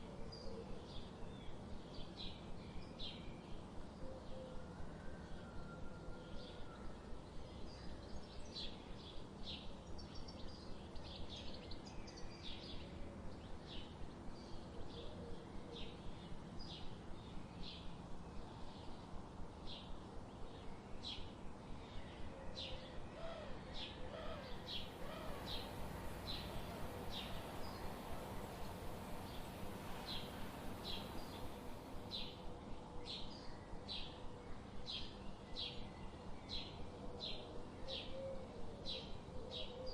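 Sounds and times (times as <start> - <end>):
steady background noise: 11.8 - 39.8
bird chip calls: 24.3 - 31.7.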